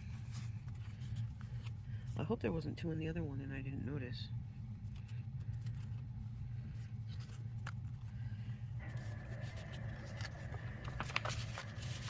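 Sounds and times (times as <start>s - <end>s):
paper sheets rustling: 0.0s - 2.1s, 4.8s - 12.0s
steady low hum: 0.0s - 12.0s.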